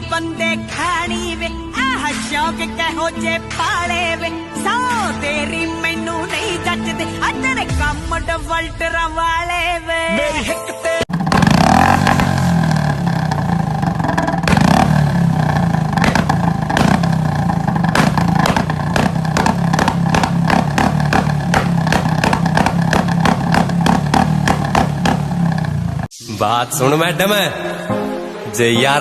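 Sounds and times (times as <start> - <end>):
exhaust pops and crackles: 11.1 - 26.1
motorcycle engine running: 11.1 - 26.1.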